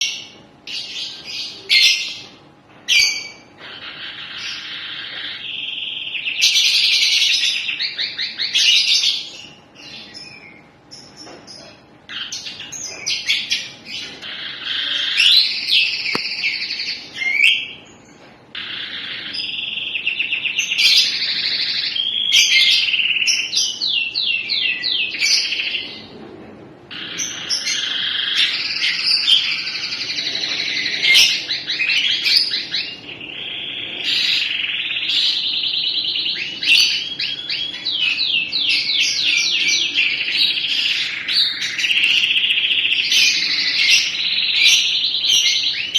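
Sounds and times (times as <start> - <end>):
canary singing trills: 0.0 - 26.2, 26.9 - 45.9.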